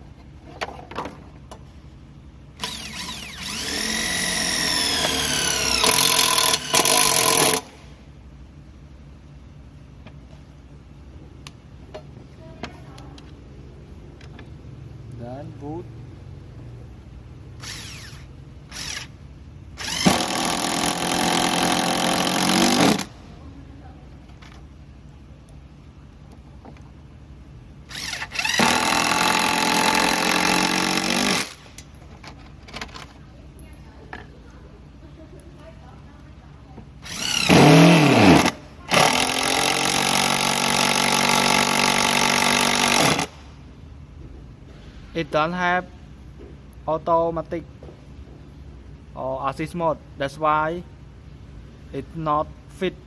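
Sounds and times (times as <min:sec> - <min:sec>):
impact driver driving a screw: 0:02.6 - 0:07.7, 0:17.6 - 0:19.1, 0:19.8 - 0:23.1, 0:27.9 - 0:31.6, 0:37.0 - 0:43.4.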